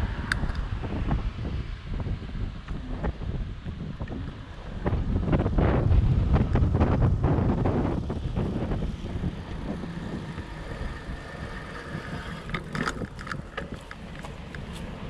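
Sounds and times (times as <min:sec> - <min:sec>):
wind buffeting microphone: 0:00.0 - 0:15.0
bike tyres rolling over ground: 0:02.7 - 0:15.0
sharp clicks and rattles: 0:07.9 - 0:14.7.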